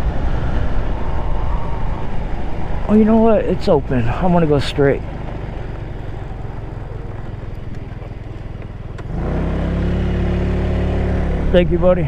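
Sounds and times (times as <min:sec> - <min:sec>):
scooter engine running: 0:04.1 - 0:11.8.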